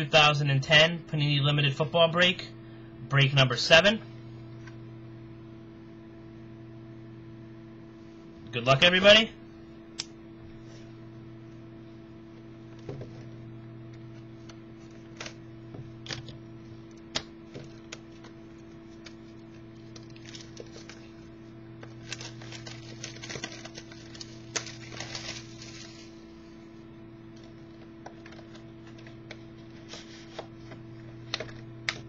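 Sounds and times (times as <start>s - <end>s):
steady low hum: 0.0s - 32.0s
packaging clicks and rustles: 17.6s - 21.2s, 21.8s - 26.1s.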